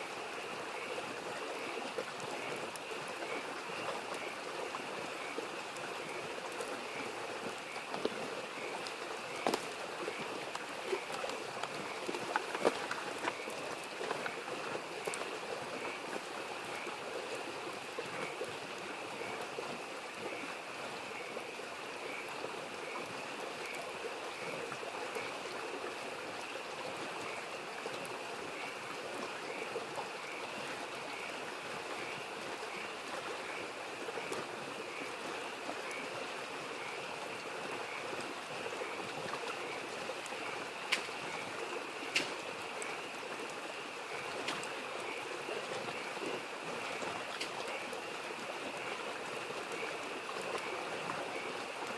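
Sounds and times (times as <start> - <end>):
frogs calling: 0.0 - 51.9
stream rushing: 0.0 - 51.9
campfire crackling and popping: 0.8 - 20.4, 39.4 - 45.2.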